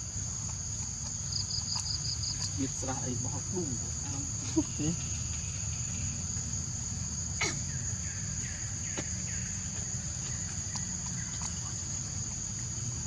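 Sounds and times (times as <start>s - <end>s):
insect drone: 0.0s - 13.0s
bird chirping: 7.6s - 12.8s.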